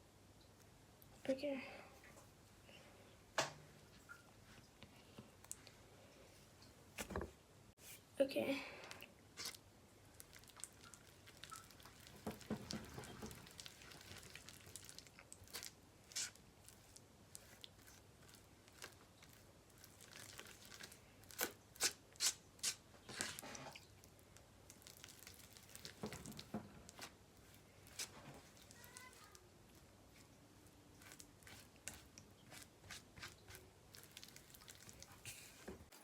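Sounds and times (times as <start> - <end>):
packaging crinkling and tearing: 10.2 - 23.4, 24.6 - 29.4, 33.2 - 35.5.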